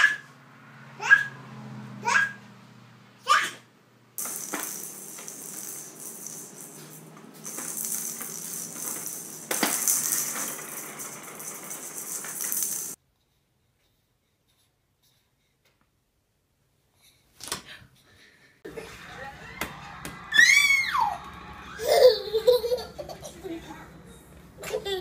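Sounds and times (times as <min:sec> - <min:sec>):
baby squealing: 0:01.0 - 0:01.4, 0:02.0 - 0:02.4
hissy rattling: 0:04.2 - 0:13.0.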